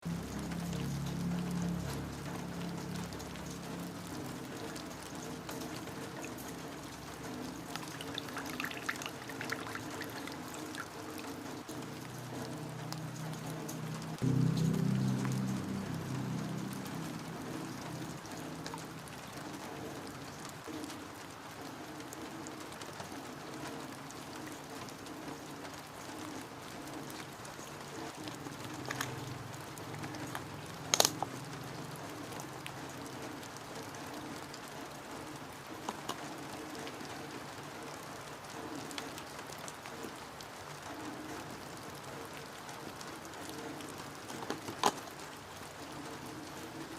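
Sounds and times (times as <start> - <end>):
steady rain falling: 0.0 - 46.9
sharp drip or knock sounds: 7.7 - 11.1.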